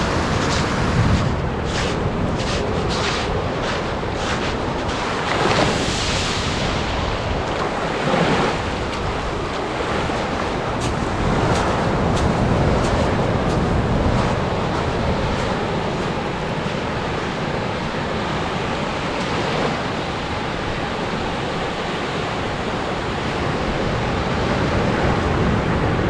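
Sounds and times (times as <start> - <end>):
wind buffeting microphone: 0.0 - 18.9
surf washing onto beach: 0.0 - 26.0.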